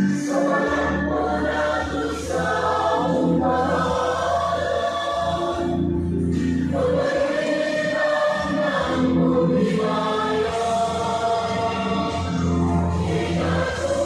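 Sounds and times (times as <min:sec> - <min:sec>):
low bass tone: 0:00.0 - 0:07.3
choir singing held notes: 0:00.0 - 0:14.0.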